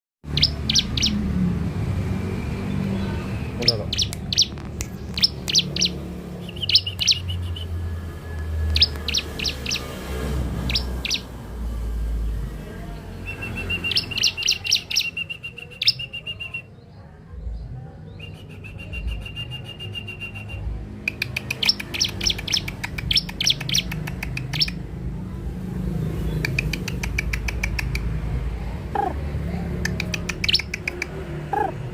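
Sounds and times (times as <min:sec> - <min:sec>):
bird chirping and trilling: 0:00.3 - 0:08.0, 0:08.6 - 0:16.9, 0:17.5 - 0:24.8, 0:29.8 - 0:31.9.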